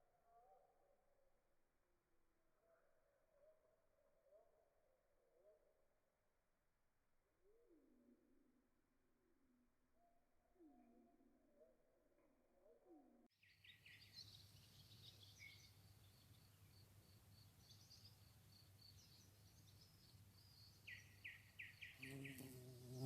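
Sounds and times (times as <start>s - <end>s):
faint birdsong chirps: 0.0s - 23.0s.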